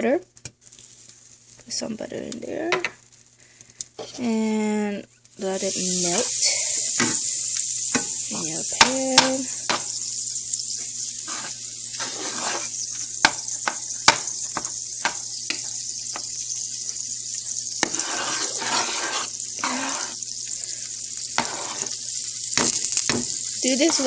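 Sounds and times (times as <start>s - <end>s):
butter sizzling in a pan: 0.0s - 24.0s
utensil clicking against pan: 8.7s - 9.9s, 13.2s - 16.3s.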